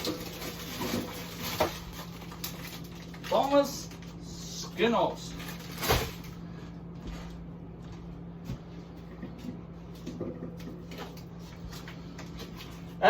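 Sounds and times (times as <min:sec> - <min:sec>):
food packages knocking and rustling: 0:00.0 - 0:03.6, 0:05.4 - 0:06.4
steady low hum: 0:00.0 - 0:13.0.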